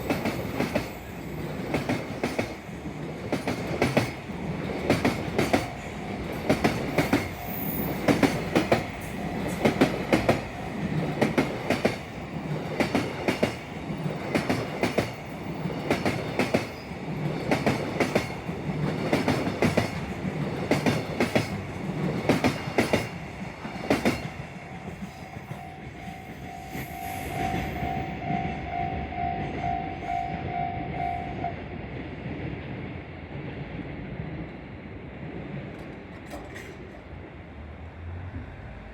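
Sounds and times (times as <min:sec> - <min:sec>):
train wheels clacking over rail joint: 0:00.0 - 0:25.8, 0:35.7 - 0:37.1
train rumble: 0:00.0 - 0:38.9.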